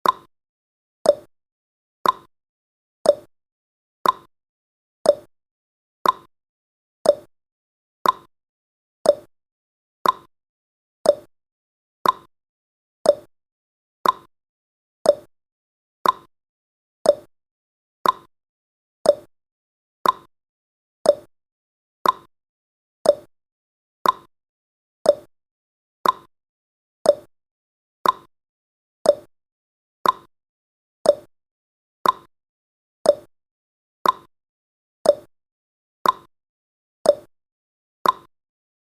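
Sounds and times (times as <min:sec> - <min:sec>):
clock ticking: 0:02.0 - 0:02.3, 0:04.0 - 0:04.3, 0:06.0 - 0:06.3, 0:08.0 - 0:08.3, 0:10.0 - 0:10.3, 0:12.0 - 0:12.3, 0:14.0 - 0:14.3, 0:15.1 - 0:15.3, 0:16.0 - 0:16.3, 0:18.0 - 0:18.3, 0:20.0 - 0:20.3, 0:21.1 - 0:21.3, 0:22.0 - 0:22.3, 0:24.0 - 0:24.3, 0:26.0 - 0:26.3, 0:28.0 - 0:28.3, 0:29.1 - 0:29.3, 0:30.0 - 0:30.3, 0:31.1 - 0:31.3, 0:32.0 - 0:32.3, 0:33.1 - 0:33.3, 0:34.0 - 0:34.3, 0:35.1 - 0:35.3, 0:36.0 - 0:36.3, 0:38.0 - 0:38.3.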